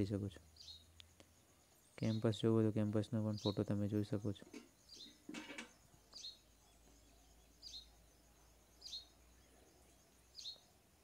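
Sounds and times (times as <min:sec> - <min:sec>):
faint high bird chirp: 0:00.0 - 0:11.0.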